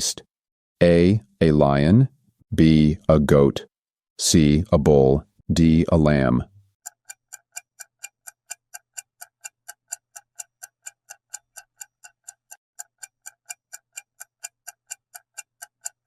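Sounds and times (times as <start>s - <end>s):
clock ticking: 6.8s - 16.0s.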